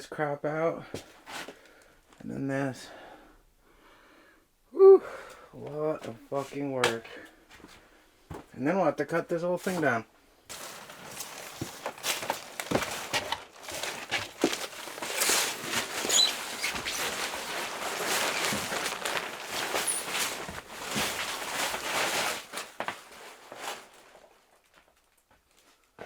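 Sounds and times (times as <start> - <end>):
rustling and scraping junk: 10.5 - 25.7.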